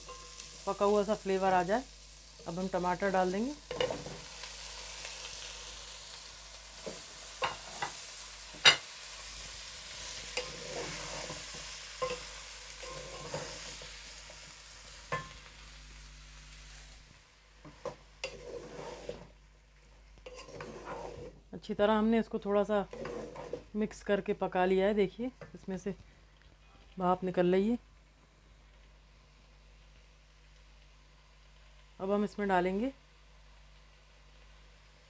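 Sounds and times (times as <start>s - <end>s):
vegetables sizzling in a pot: 0.0s - 26.3s, 27.0s - 35.0s
wooden spatula scraping a pot: 10.1s - 13.9s, 17.7s - 19.4s, 20.2s - 21.4s, 22.7s - 23.9s.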